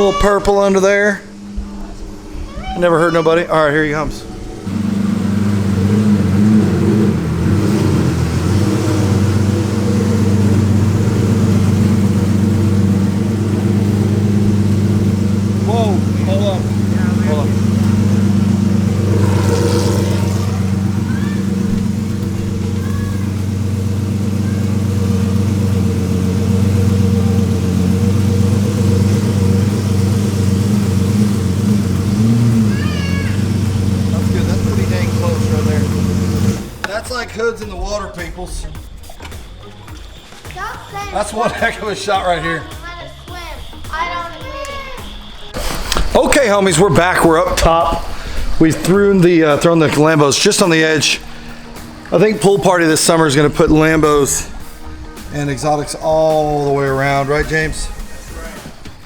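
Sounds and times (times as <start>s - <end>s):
car engine running at low revs: 3.9s - 36.9s, 45.7s - 57.9s.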